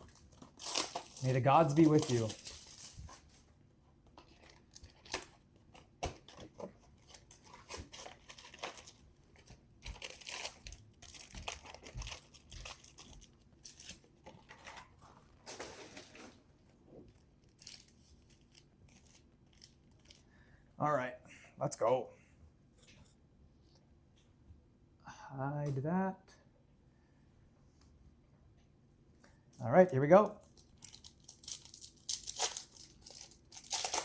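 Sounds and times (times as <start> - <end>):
plastic wrapping tearing and crinkling: 0.0 - 3.4, 4.2 - 6.4, 7.0 - 16.4, 17.0 - 20.2, 30.4 - 34.0.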